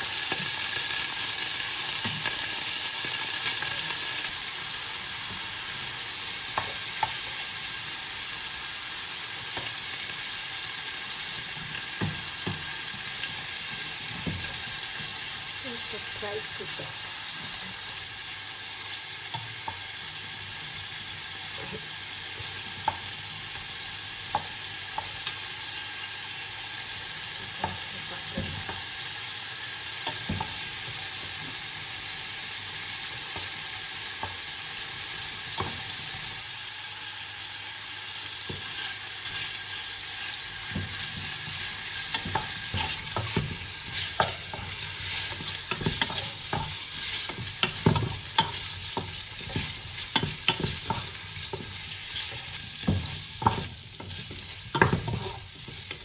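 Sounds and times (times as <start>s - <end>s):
shrimp sizzling in oil: 0.0s - 56.0s
wooden spatula stirring: 40.2s - 56.0s.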